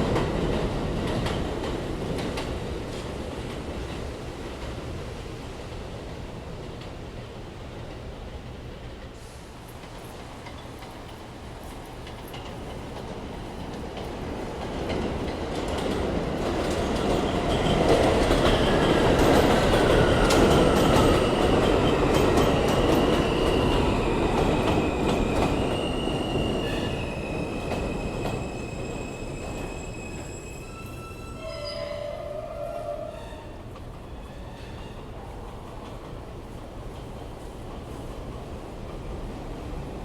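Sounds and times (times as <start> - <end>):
subway train rumbling on rails: 0.0 - 40.0
wheel and brake squeals: 25.6 - 35.1.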